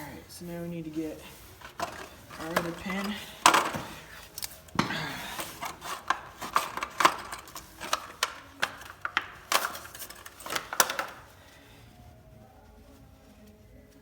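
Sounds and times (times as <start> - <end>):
metal hitch parts clinking: 1.3 - 11.6.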